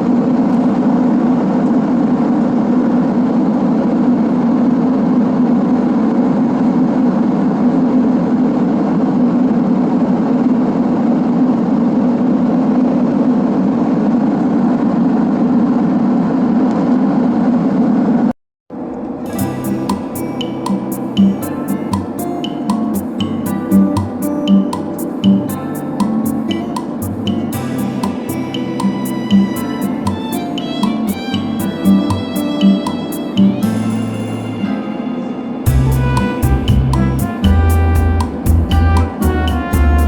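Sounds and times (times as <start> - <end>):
airplane cabin engine drone: 0.0 - 23.8
guitar music: 19.2 - 40.0.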